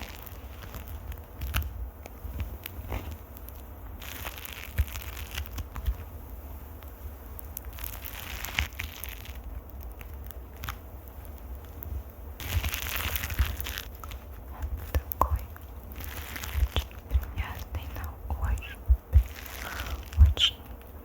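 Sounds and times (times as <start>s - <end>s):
microphone being scratched: 12.4s - 20.8s.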